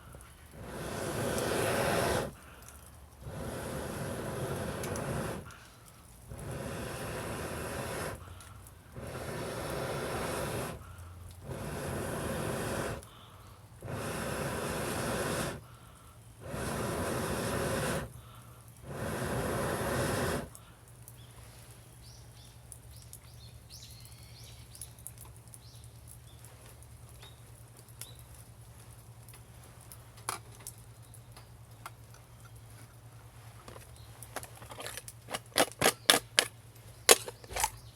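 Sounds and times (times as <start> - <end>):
fire crackling and popping: 0.0 - 32.8
bursts of rushing air: 0.6 - 2.5, 3.2 - 5.6, 6.3 - 8.2, 9.0 - 13.1, 13.8 - 15.6, 16.4 - 18.2, 18.8 - 20.5.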